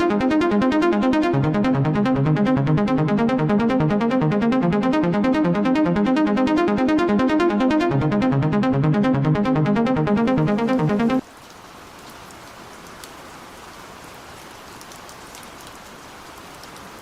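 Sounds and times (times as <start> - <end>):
pulsing synthesizer pattern: 0.0 - 11.2
steady electronic beat: 0.0 - 11.2.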